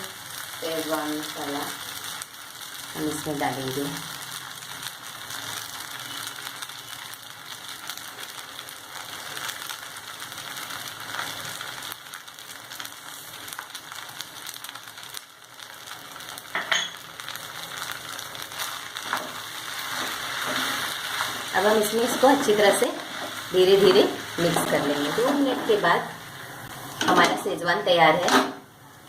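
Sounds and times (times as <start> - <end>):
food sizzling in a pan: 0.0 - 29.0
spoon scraping and knocking pan: 19.0 - 25.8.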